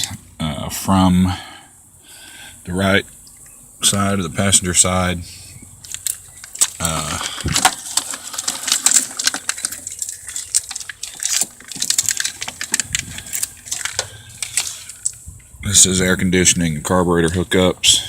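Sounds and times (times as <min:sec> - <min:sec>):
plastic clicks and rattles of wires: 0:05.8 - 0:15.2.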